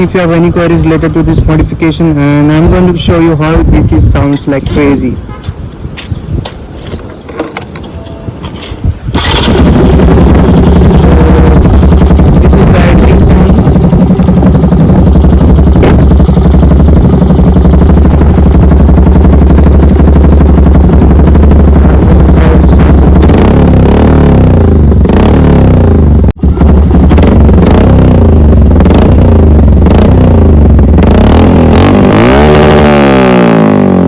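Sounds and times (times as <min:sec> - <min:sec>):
motorcycle engine idling loudly: 0:09.2 - 0:34.0.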